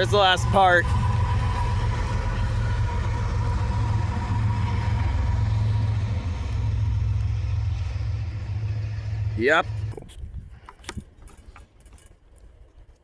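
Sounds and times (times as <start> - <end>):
freight train rumbling past: 0.0 - 10.2
faint high whine: 0.0 - 10.3.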